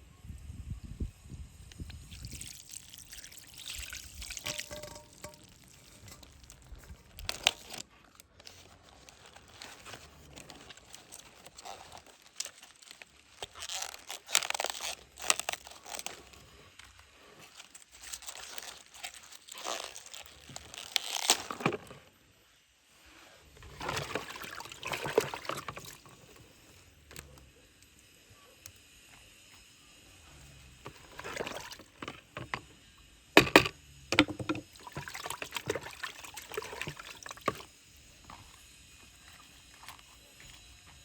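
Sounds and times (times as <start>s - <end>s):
water pouring and splashing: 1.9s - 7.8s, 23.6s - 26.4s, 30.8s - 32.5s, 34.2s - 37.7s
handling clicks and knocks: 4.4s - 6.4s, 30.9s - 32.6s, 33.4s - 35.6s.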